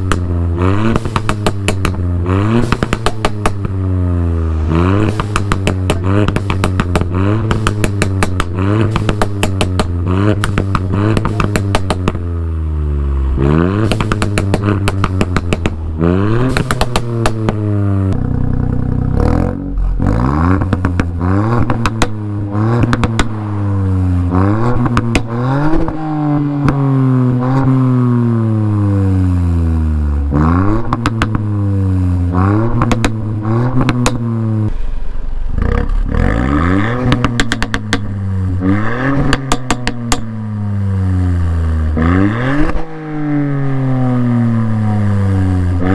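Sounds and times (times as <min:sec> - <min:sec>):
exhaust pops and crackles: 0:00.0 - 0:43.4
car engine revving: 0:00.0 - 0:45.9.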